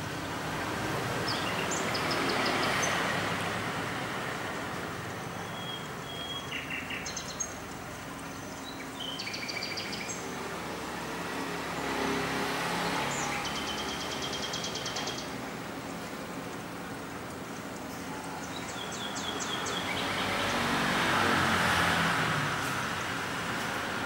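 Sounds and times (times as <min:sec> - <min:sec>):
outdoor background noise: 0:00.0 - 0:24.0
small birds chirping trills: 0:01.2 - 0:10.6, 0:12.8 - 0:21.0.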